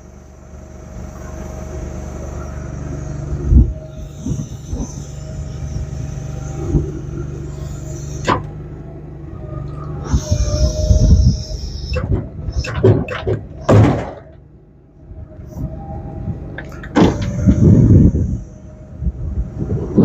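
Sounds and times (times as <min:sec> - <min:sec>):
truck engine humming: 0:00.0 - 0:20.0
hydraulic knocks and clunks: 0:08.2 - 0:08.7, 0:10.0 - 0:14.5, 0:16.3 - 0:18.4.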